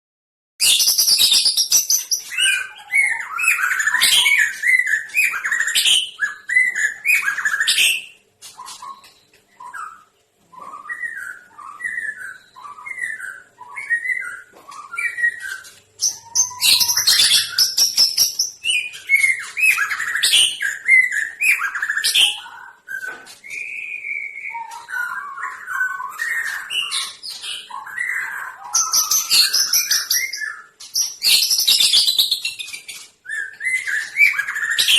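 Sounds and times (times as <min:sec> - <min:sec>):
songbirds chirping and whistling: 0:00.6 - 0:34.9.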